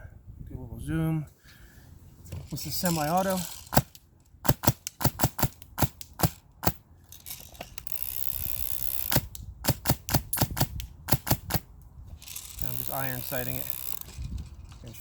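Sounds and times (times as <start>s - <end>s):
airsoft gun single shots: 3.7s - 6.8s.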